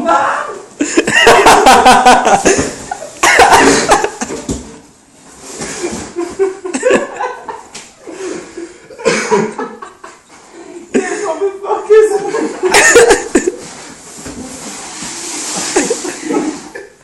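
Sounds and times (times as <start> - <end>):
people laughing loudly: 0.0 - 4.4, 6.2 - 10.2, 12.2 - 13.6
coughing laughs: 0.8 - 4.3, 9.0 - 9.9, 12.6 - 13.6.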